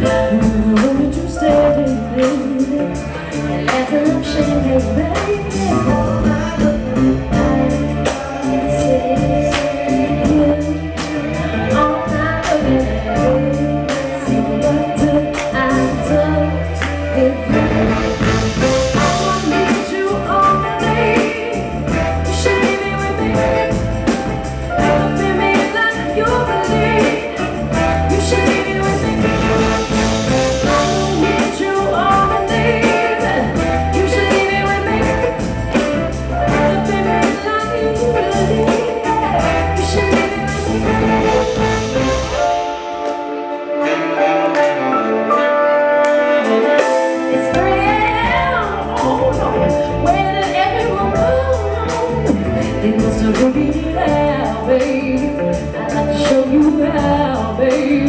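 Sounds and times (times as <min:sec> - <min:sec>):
bass: 0:00.0 - 0:42.9, 0:46.7 - 0:58.0
person singing: 0:00.0 - 0:45.5
guitar: 0:00.0 - 0:58.0
drum beat: 0:17.5 - 0:43.5.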